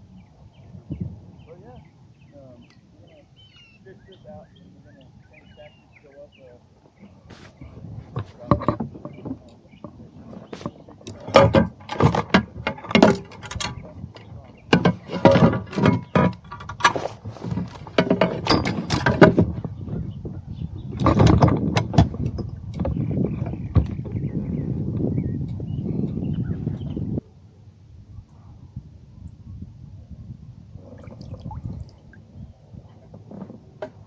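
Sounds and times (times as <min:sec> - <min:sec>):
knocks and thumps on kayak: 0:07.0 - 0:25.2.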